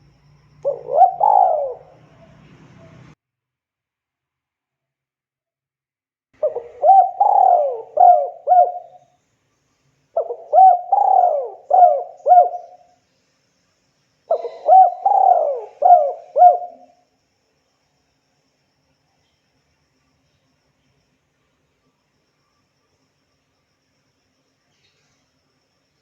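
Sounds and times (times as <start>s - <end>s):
dove cooing: 0.6s - 3.1s, 6.4s - 9.0s, 10.2s - 12.9s, 14.3s - 17.0s.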